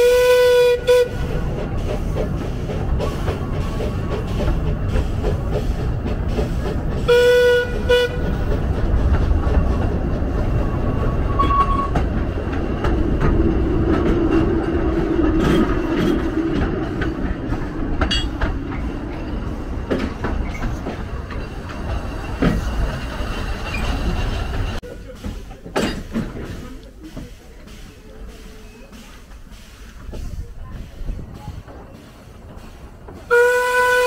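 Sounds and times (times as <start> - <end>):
train horn toots: 0.0 - 1.3, 7.0 - 8.4, 11.4 - 12.0, 33.3 - 34.0
train wheels rumbling: 0.0 - 34.0.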